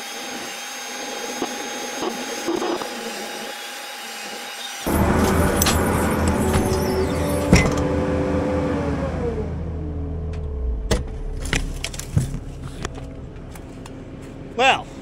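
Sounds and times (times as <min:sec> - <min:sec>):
mulcher machine winding down: 0:04.9 - 0:14.6.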